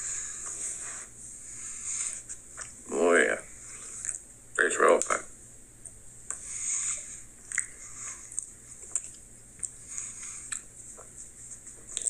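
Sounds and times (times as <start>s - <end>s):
person chewing chocolate: 7.4s - 11.2s.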